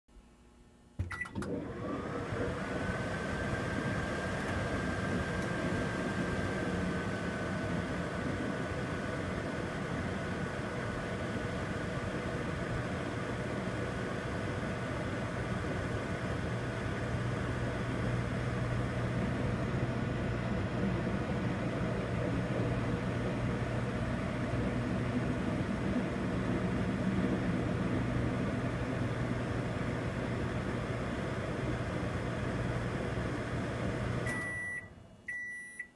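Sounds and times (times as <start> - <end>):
microwave oven humming: 0.1 - 35.9.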